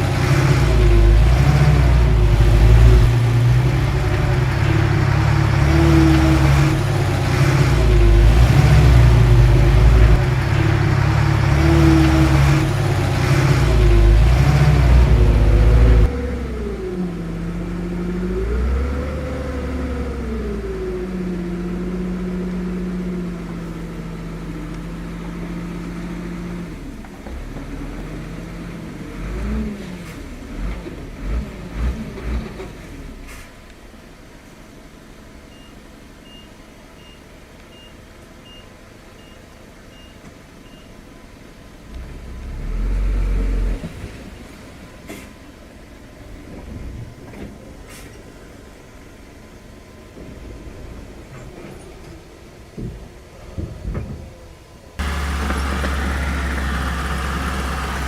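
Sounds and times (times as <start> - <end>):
heavy machinery diesel engines: 0.0 - 58.0
reversing alarm beeps: 35.5 - 40.9
low running engine: 52.8 - 58.0.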